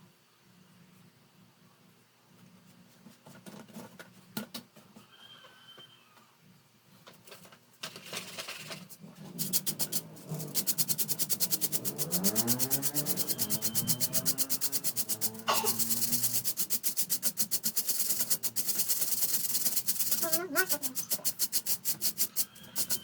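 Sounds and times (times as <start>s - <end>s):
scrubbing strokes on fan: 8.8s - 23.0s.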